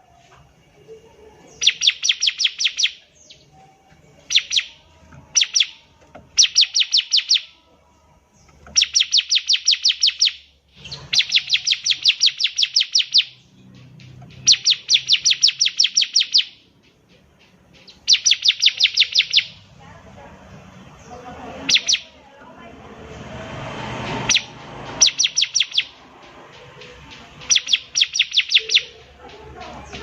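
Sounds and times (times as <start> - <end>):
bird rapid high chips: 1.5 - 3.5, 4.2 - 7.6, 8.6 - 19.6, 21.6 - 22.2, 23.9 - 30.0.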